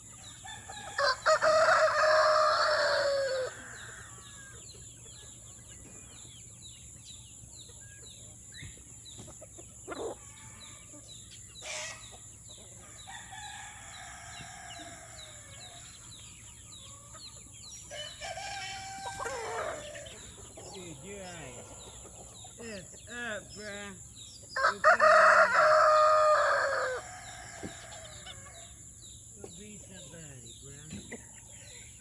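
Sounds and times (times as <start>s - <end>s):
chickens peeping and clucking: 0.0s - 32.0s
rooster crowing: 0.4s - 4.6s, 13.0s - 15.9s, 17.9s - 20.2s, 24.6s - 28.8s.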